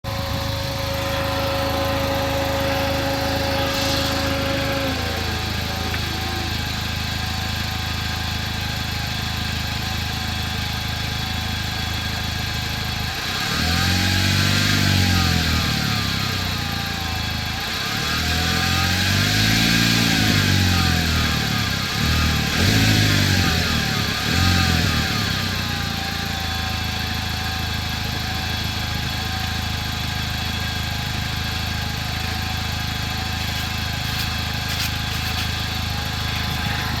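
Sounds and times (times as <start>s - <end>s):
whine sliding down in pitch: 0.0s - 8.0s, 36.2s - 37.0s
car engine revving: 0.0s - 8.7s, 12.9s - 26.2s, 33.2s - 37.0s
car engine idling: 0.0s - 37.0s.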